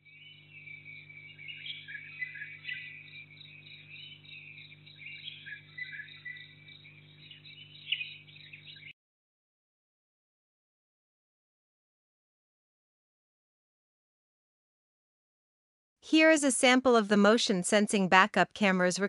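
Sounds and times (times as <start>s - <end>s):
birds chirping: 0.0s - 9.0s
low electrical hum: 0.0s - 9.0s.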